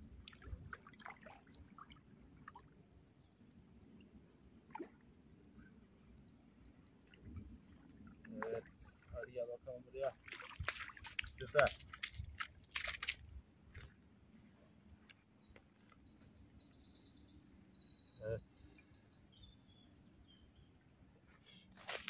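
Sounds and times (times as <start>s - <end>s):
small songbird singing: 15.4s - 21.7s.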